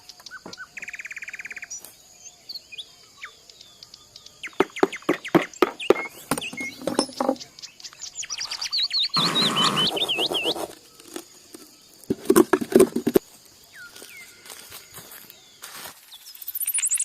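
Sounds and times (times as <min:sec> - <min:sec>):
small birds chirping: 0:00.0 - 0:17.0
rustling: 0:09.2 - 0:13.2.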